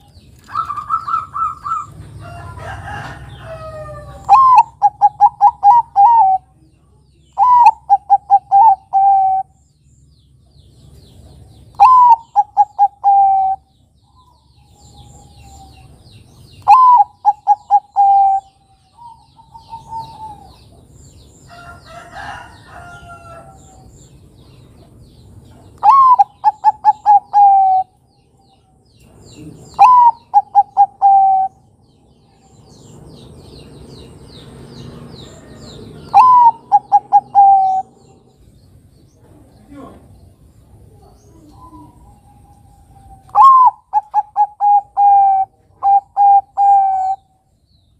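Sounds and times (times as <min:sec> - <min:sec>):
doves cooing: 0:00.4 - 0:06.5, 0:07.4 - 0:09.6, 0:11.8 - 0:13.7, 0:16.6 - 0:20.9, 0:25.8 - 0:28.0, 0:29.4 - 0:31.6, 0:34.9 - 0:38.4, 0:40.8 - 0:47.3
rough bird call: 0:25.8 - 0:28.0, 0:34.8 - 0:38.4, 0:41.6 - 0:47.4.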